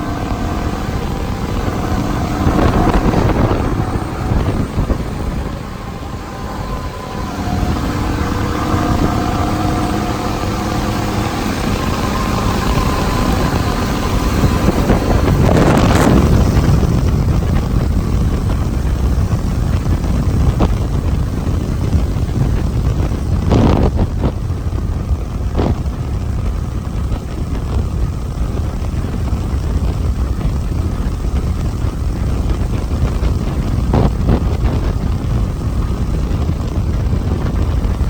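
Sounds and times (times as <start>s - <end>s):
motorcycle engine rumble: 0.0s - 38.0s
wind buffeting microphone: 0.0s - 38.0s.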